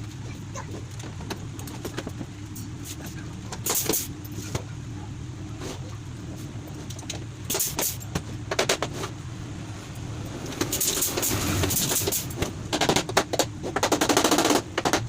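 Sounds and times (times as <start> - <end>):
steady low rumble: 0.0 - 14.0
workshop knocks and clicks: 0.7 - 4.7, 6.6 - 9.2, 10.4 - 15.0
rapid clattering: 10.4 - 15.0.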